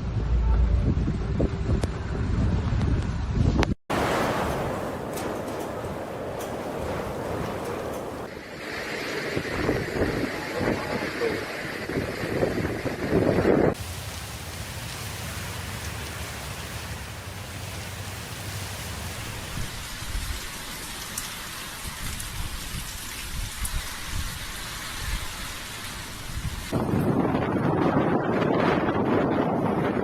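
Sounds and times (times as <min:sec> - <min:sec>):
low rumbles: 0:00.0 - 0:20.3
heavy rain hissing: 0:03.9 - 0:12.2, 0:13.7 - 0:26.9.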